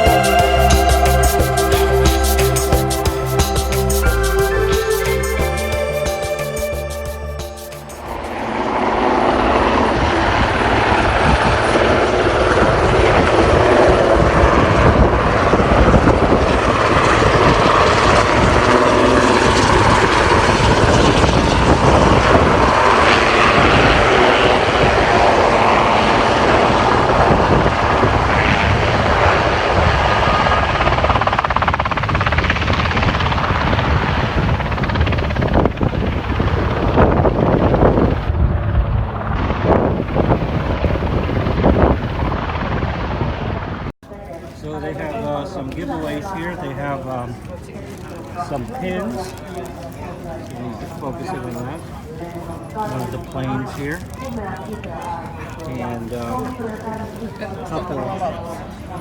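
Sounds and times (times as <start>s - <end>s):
helicopter in flight: 0.0s - 43.9s.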